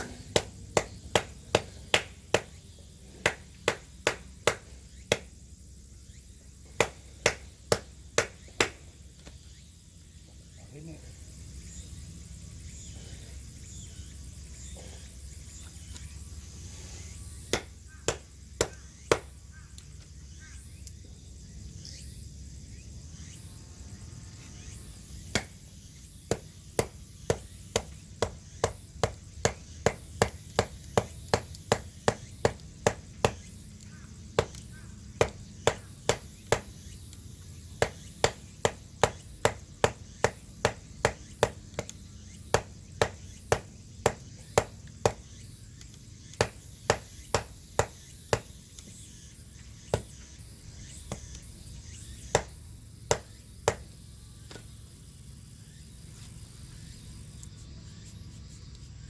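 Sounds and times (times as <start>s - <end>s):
wood being chopped: 0.0s - 2.6s, 3.2s - 5.3s, 6.8s - 8.8s, 17.4s - 19.4s, 25.3s - 37.2s, 37.8s - 45.4s, 46.3s - 48.6s, 49.9s - 50.2s, 51.1s - 51.5s, 52.2s - 54.7s.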